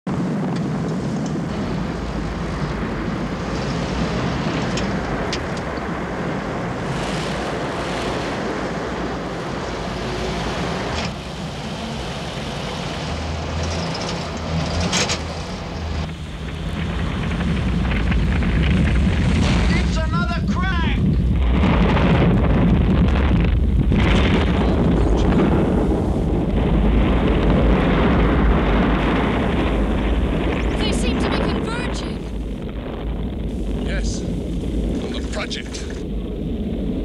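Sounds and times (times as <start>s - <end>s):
car engine running: 1.0s - 21.5s.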